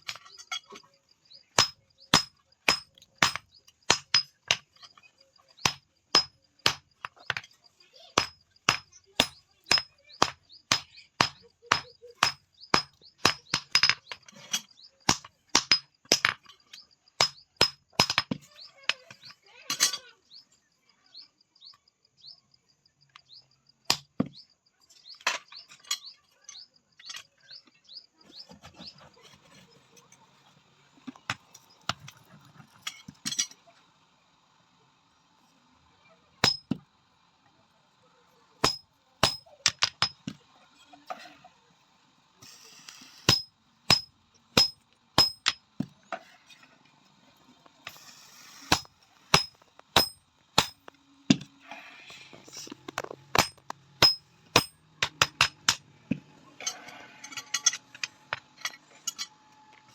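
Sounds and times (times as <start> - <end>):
hammer striking steel on anvil: 1.6 - 4.6, 5.6 - 7.4, 8.2 - 14.0, 17.2 - 18.2, 36.4 - 36.8, 38.6 - 40.3, 43.2 - 45.6, 48.7 - 50.9, 53.4 - 55.8.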